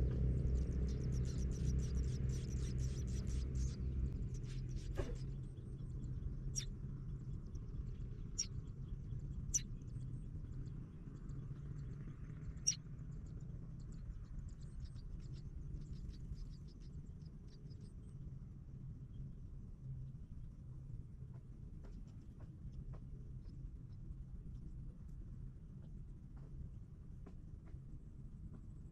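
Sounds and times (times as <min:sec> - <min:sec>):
steady low rumble: 0:00.0 - 0:28.9
nestling birds cheeping: 0:00.3 - 0:05.3, 0:06.5 - 0:06.7.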